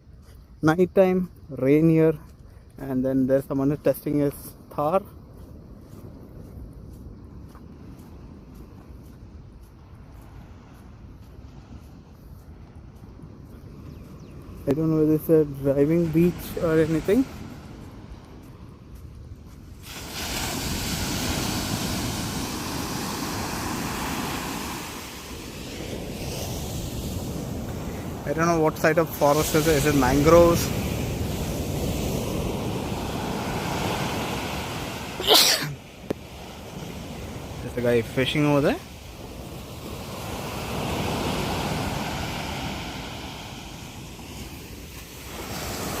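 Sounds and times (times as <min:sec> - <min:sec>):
wind rumbling on microphone: 0:00.0 - 0:46.0
ocean surf breaking: 0:14.5 - 0:46.0.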